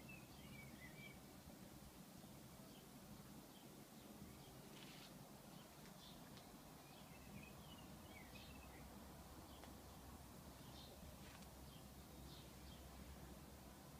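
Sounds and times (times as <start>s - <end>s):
faint bird chirps: 0.0s - 1.3s.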